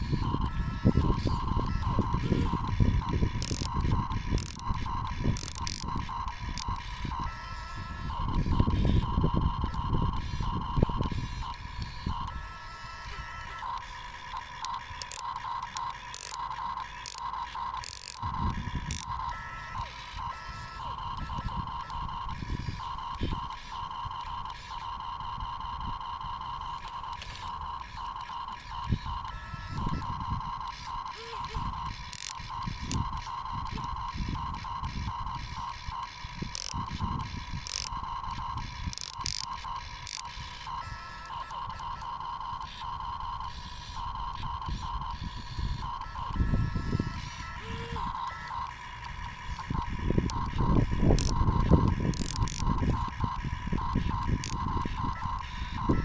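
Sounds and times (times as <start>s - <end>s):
toy gear motors whining: 0.0s - 56.0s
clicks: 8.1s - 46.4s.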